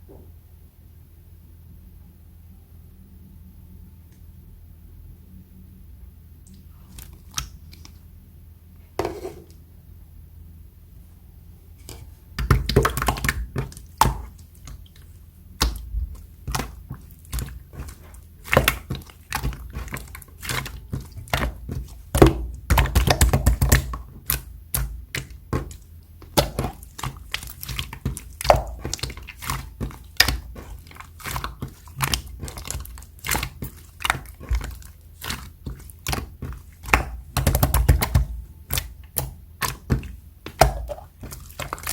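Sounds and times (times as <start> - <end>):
slime squished by hand: 11.8 - 41.9.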